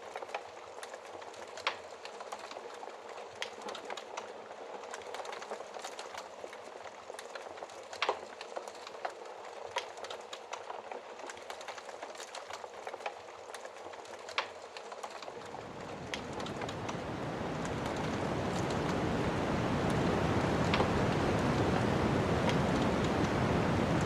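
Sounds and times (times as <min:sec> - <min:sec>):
wood fire crackling and popping: 0:00.0 - 0:24.0
snowstorm wind rushing: 0:15.4 - 0:24.0.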